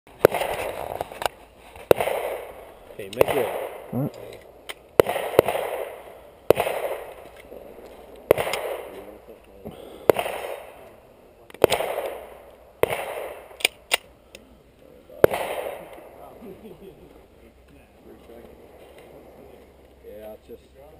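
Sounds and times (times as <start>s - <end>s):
pistol shots with echo: 0.1s - 1.0s, 1.9s - 9.3s, 10.0s - 14.1s, 15.2s - 16.3s
faint sharp cracks: 0.1s - 14.4s.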